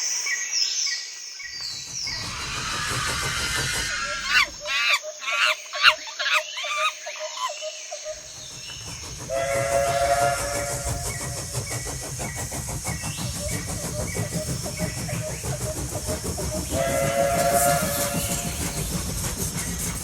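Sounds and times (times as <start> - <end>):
fast even clicking: 1.5 - 4.6
recorded steam whistle: 9.3 - 11.3, 16.7 - 18.8.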